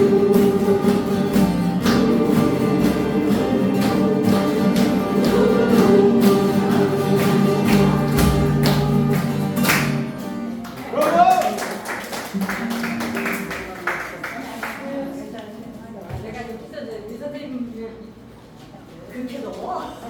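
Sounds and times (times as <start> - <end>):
group singing: 0.0 - 10.2
acoustic guitars strumming: 0.0 - 10.9.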